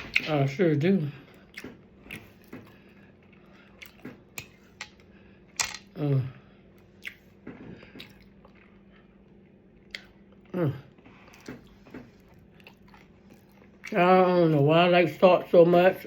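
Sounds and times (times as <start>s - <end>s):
person chewing: 1.3s - 5.1s, 6.7s - 14.0s.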